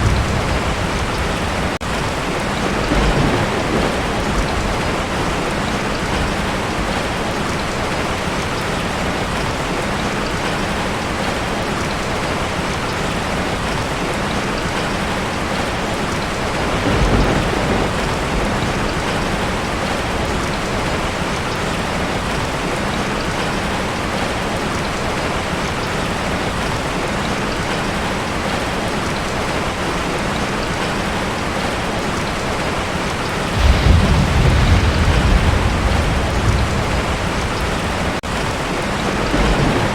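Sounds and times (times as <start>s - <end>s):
thunder rumbling: 0.0s - 7.2s, 16.4s - 21.2s, 33.2s - 39.9s
heavy rain on a tin roof: 0.0s - 39.9s.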